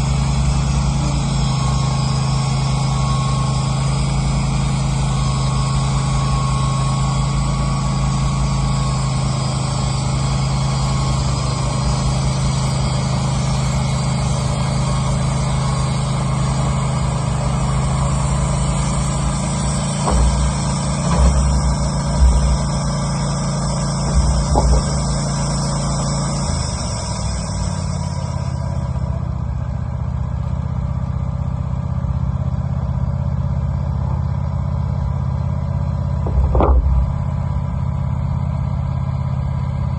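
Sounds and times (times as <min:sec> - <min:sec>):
sawmill engine running: 0:00.0 - 0:39.9
band blade sawing wood: 0:17.6 - 0:28.6, 0:36.3 - 0:37.2
knocks: 0:19.9 - 0:23.2, 0:24.0 - 0:25.4, 0:36.3 - 0:37.3.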